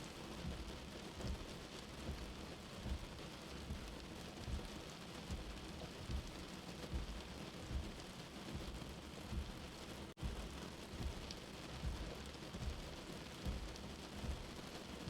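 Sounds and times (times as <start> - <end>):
rain hiss: 0.0 - 15.0
low heartbeat thump: 0.4 - 14.6.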